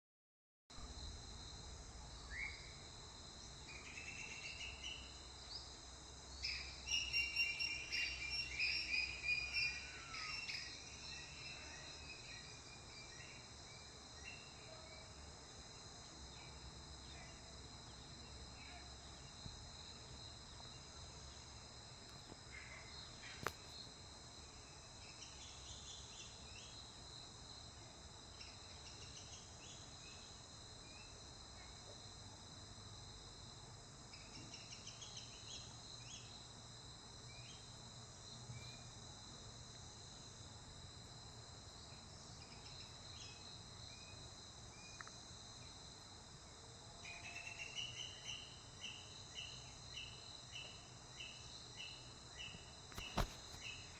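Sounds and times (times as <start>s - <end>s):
bird chirps: 6.4s - 13.4s.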